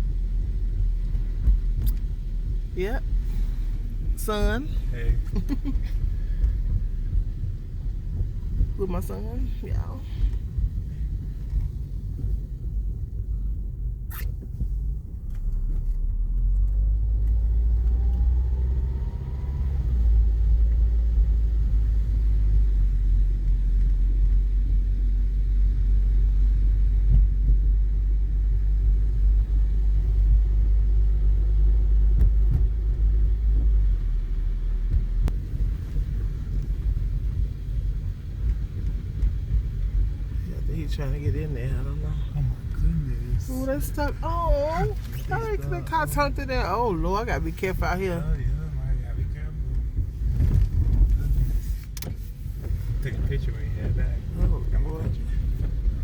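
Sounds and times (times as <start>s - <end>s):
car cabin rumble: 0.0s - 56.0s
car engine speeding up: 15.1s - 37.5s.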